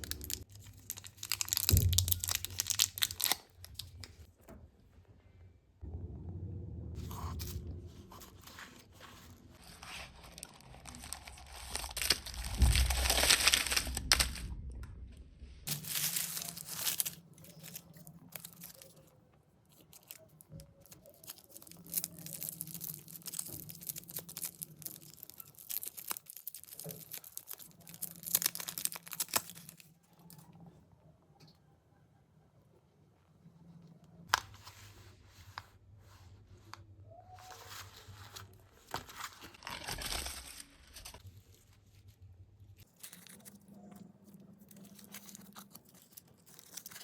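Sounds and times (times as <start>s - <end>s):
wrappers tearing and crinkling: 0.0s - 4.3s, 8.2s - 14.6s, 15.6s - 30.4s, 37.4s - 42.0s, 42.8s - 47.0s.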